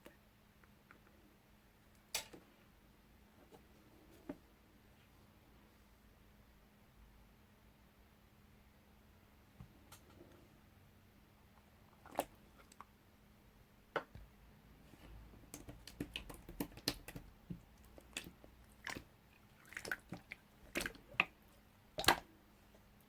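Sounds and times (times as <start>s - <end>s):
hands squishing modelling clay: 11.4s - 13.0s, 14.0s - 23.0s.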